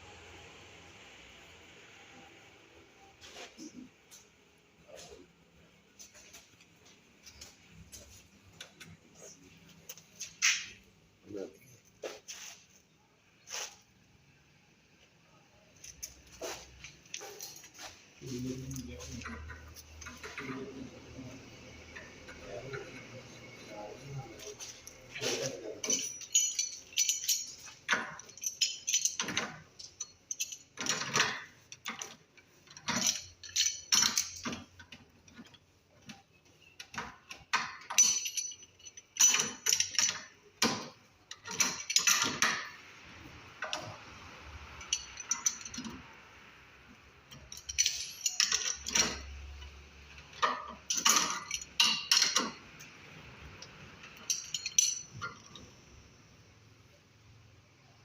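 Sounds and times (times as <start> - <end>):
metallic clinking and rattling: 15.7 - 20.9, 24.2 - 46.2, 47.2 - 56.2.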